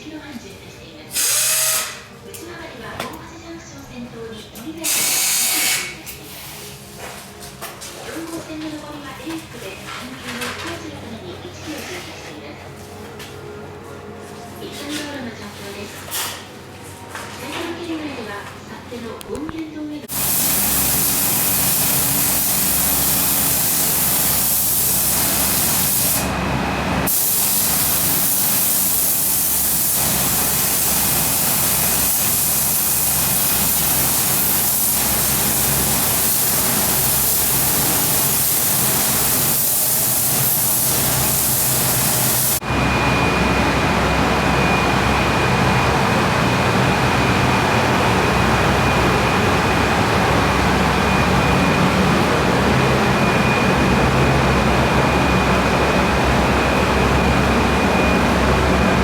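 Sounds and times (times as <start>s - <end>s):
high-pressure spray hissing: 4.9s - 5.9s, 20.1s - 26.3s, 27.1s - 42.6s
machine running with high whine: 20.1s - 59.0s.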